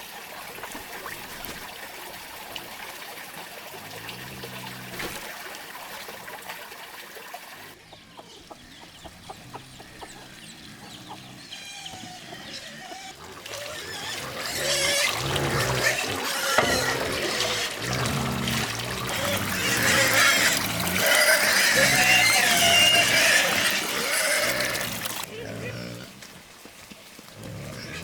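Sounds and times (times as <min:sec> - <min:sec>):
running water trickling: 0:00.0 - 0:28.0
chickens clucking: 0:07.8 - 0:24.7.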